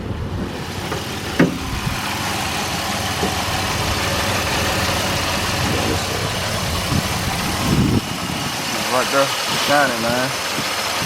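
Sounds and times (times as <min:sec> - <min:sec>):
car engine idling: 0:01.1 - 0:08.4.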